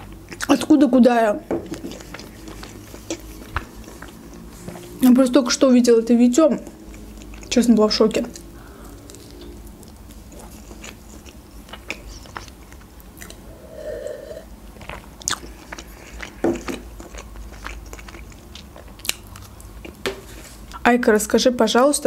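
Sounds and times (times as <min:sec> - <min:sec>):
chewing and biting crispy food: 0:01.7 - 0:05.0, 0:06.6 - 0:13.4, 0:14.8 - 0:20.7
wet mouth clicks: 0:08.3 - 0:13.5.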